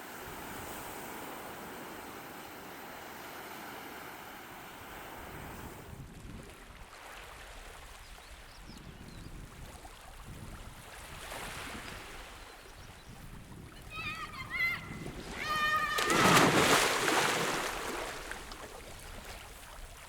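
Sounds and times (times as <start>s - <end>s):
wind: 0.0s - 20.0s
wind buffeting microphone: 5.2s - 6.9s, 7.9s - 20.0s
surf: 13.6s - 19.9s.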